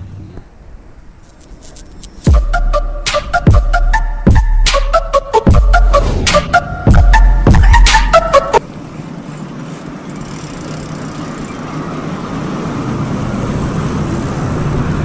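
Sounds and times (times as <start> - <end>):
vehicle noise: 0.0 - 15.0
burst of music: 1.9 - 8.6.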